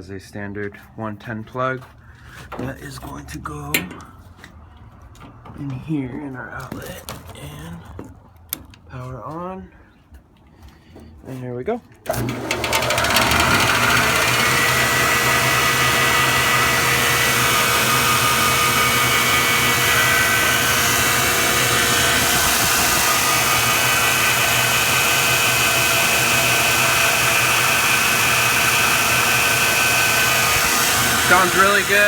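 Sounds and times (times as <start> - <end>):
bench grinder motor whine: 12.1 - 32.0.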